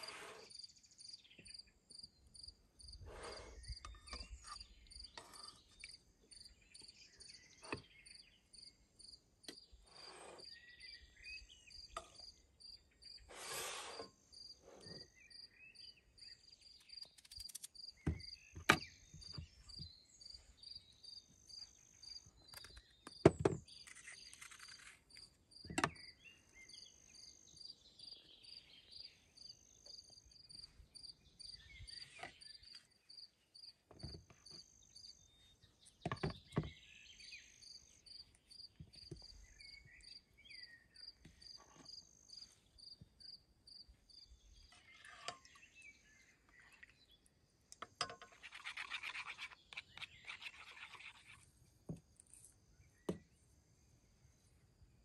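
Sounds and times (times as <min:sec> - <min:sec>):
short hiss: 0:13.3 - 0:14.1.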